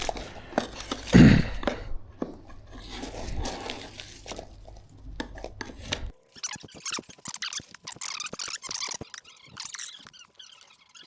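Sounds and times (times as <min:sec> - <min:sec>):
tape peeling and tearing: 0:02.7 - 0:11.0.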